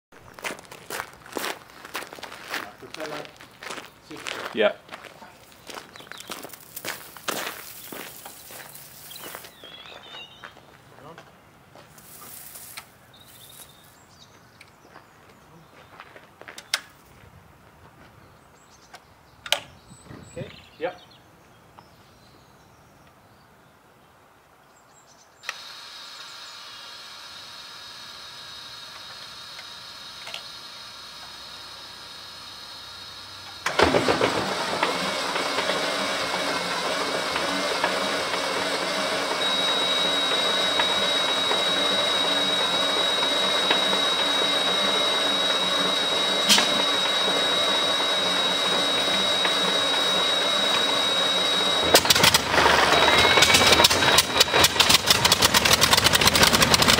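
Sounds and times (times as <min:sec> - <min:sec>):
low hum: 0:25.5 - 0:56.9
aero engine running loudly: 0:33.4 - 0:56.9.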